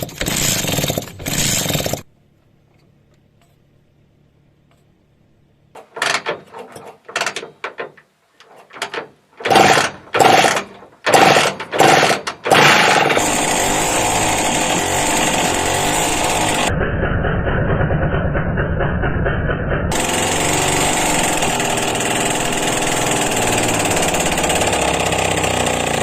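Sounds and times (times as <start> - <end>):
engine turning over and running: 9.4 - 26.0.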